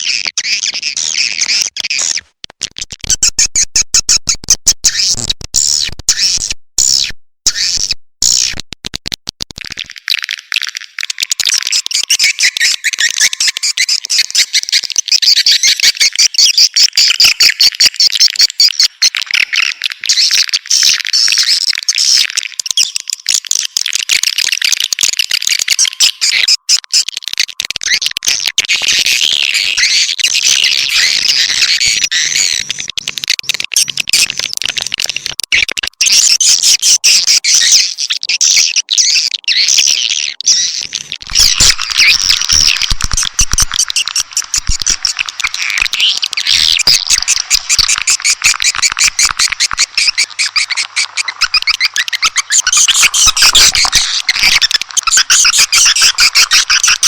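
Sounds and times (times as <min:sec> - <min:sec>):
swiftlets twittering and chirping: 0:00.0 - 0:02.2, 0:09.6 - 0:57.0.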